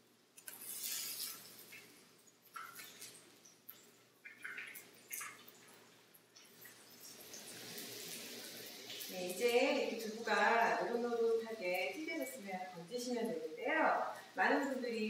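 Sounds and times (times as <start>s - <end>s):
tofu sizzling in oil: 0.5s - 2.0s, 6.8s - 10.6s.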